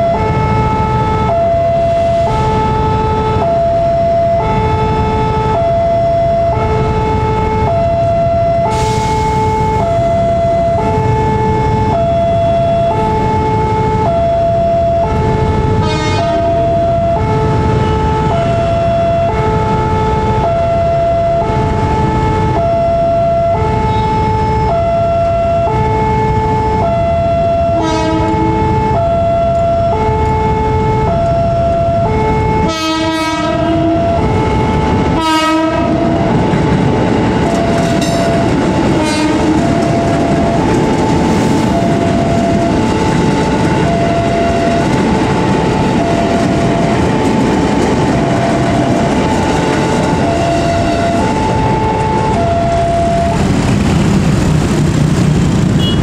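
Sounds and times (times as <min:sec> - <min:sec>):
level crossing alarm two-tone: 0:00.0 - 0:36.5, 0:37.4 - 0:53.5
train rumbling past: 0:00.0 - 0:56.0
train horn blasts: 0:15.8 - 0:21.1, 0:23.8 - 0:25.7, 0:26.9 - 0:29.9, 0:32.5 - 0:36.4, 0:37.7 - 0:40.7, 0:48.2 - 0:53.4, 0:55.7 - 0:56.0
wheels clacking on rail joints: 0:36.0 - 0:55.8.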